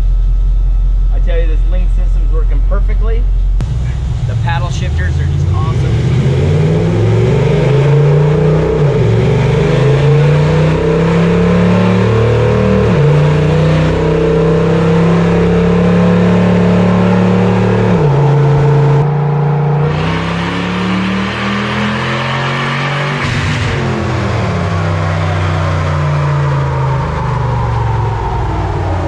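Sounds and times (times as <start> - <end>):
truck engine revving under load: 3.5 - 28.5.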